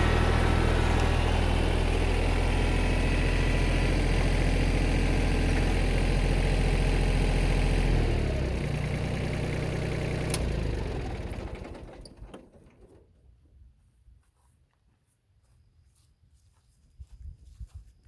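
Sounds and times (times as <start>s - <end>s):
engine idling and running down: 0.0s - 13.4s.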